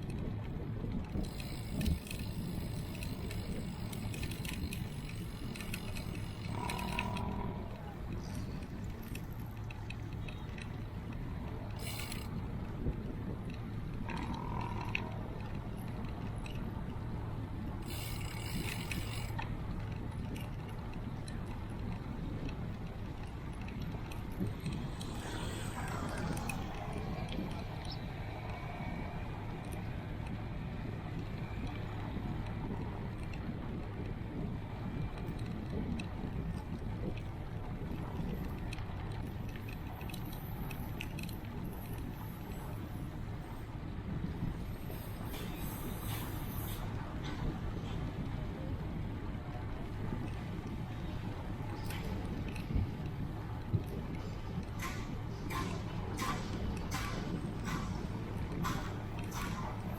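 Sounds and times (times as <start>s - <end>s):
wind and road noise: 0.0s - 59.9s
bicycle freewheel ticking: 1.1s - 12.9s, 17.0s - 28.6s.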